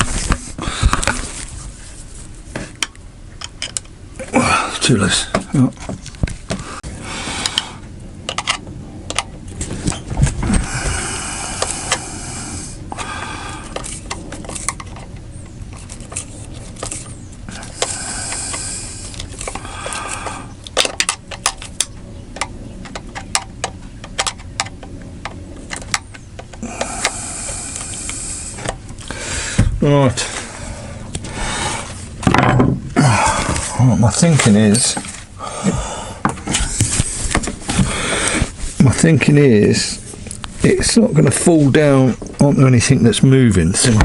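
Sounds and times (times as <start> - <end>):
scraping and rubbing: 0.0 - 2.8, 13.7 - 20.5.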